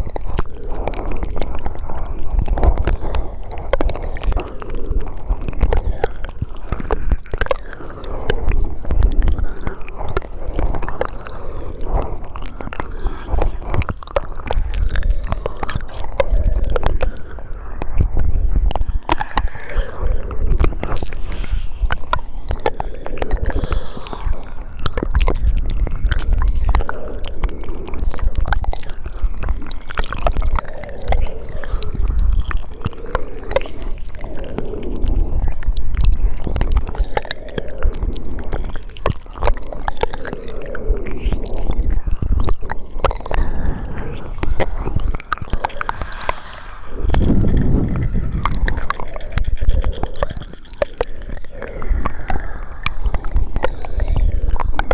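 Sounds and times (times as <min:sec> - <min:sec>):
wet mouth clicks and smacks: 0:00.0 - 0:54.9
low rumble: 0:18.4 - 0:26.0, 0:41.7 - 0:50.4.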